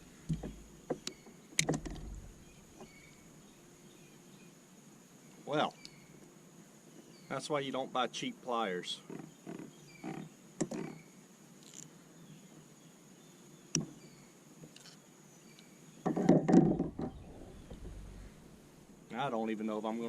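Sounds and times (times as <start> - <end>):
sharp knocks on kayak: 0.2 - 3.1, 16.0 - 18.7
scraping and thumping: 1.6 - 3.3, 16.1 - 18.9.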